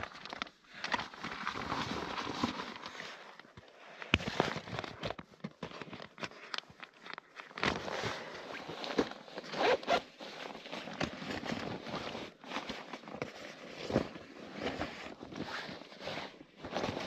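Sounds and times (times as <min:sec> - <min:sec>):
zipper rasping pulls: 0:09.4 - 0:12.1.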